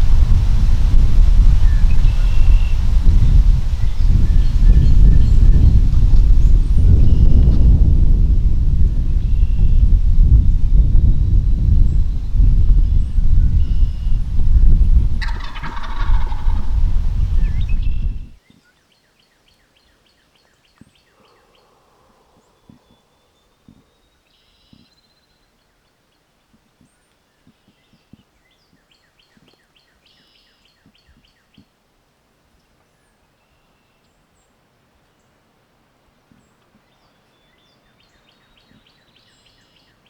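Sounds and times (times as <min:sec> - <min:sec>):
songbird trills: 0:00.0 - 0:07.8, 0:09.0 - 0:31.7, 0:36.3 - 0:40.0
loud low rumble: 0:00.0 - 0:18.4
turkey gobbling: 0:15.1 - 0:18.2.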